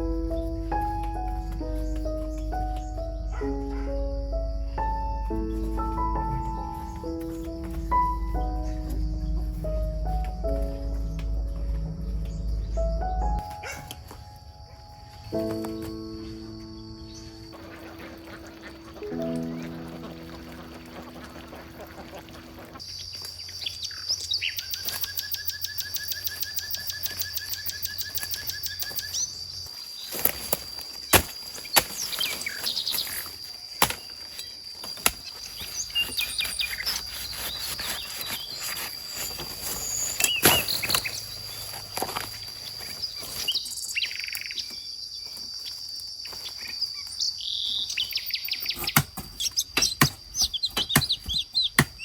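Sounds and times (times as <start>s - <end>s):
birds chirping: 0.0s - 30.1s, 31.7s - 52.0s
sharp knocks: 48.8s - 52.0s.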